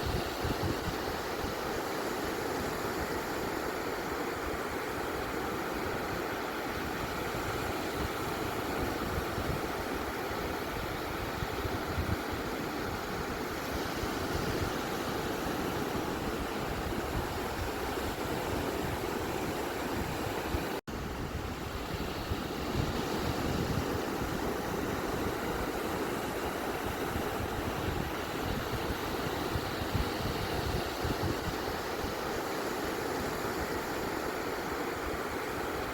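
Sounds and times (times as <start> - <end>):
ocean surf on a beach: 0.0 - 35.9.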